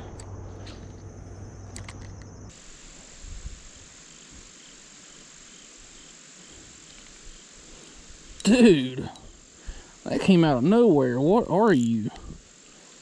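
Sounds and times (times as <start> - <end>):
low hum: 0.0 - 4.0
crickets trilling: 0.0 - 13.0.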